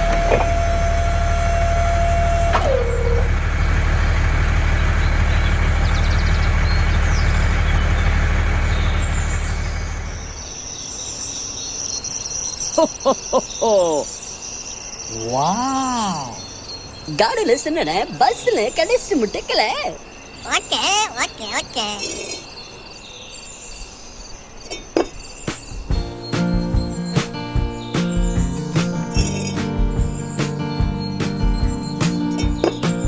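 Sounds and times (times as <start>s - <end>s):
engine humming: 0.0s - 10.6s, 25.0s - 33.0s
crickets chirping: 9.6s - 33.0s.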